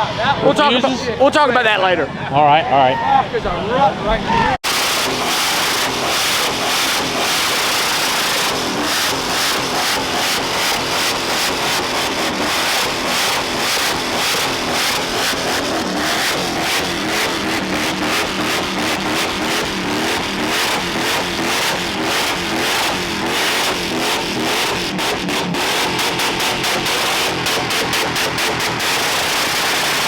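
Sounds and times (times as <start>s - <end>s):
engine revving: 4.6s - 30.0s.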